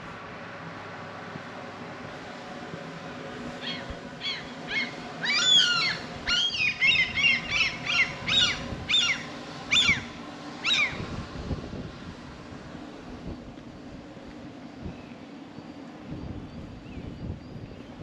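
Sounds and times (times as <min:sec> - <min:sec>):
seabird calling harshly: 0:03.6 - 0:11.0.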